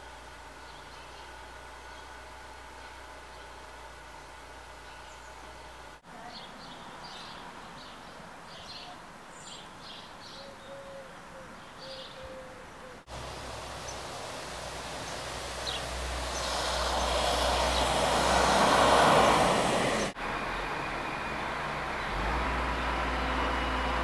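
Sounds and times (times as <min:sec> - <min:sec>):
steady outdoor hiss: 0:00.0 - 0:24.0
small birds chirping: 0:04.8 - 0:20.7.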